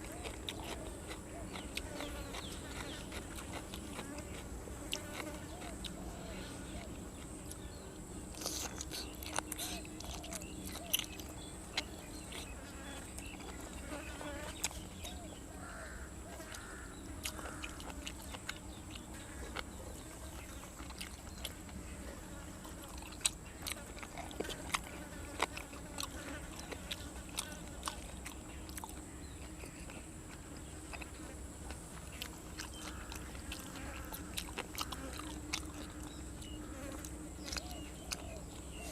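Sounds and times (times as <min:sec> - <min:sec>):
crisp eating bites and crunches: 0:00.0 - 0:06.0, 0:08.3 - 0:15.2, 0:22.7 - 0:38.9.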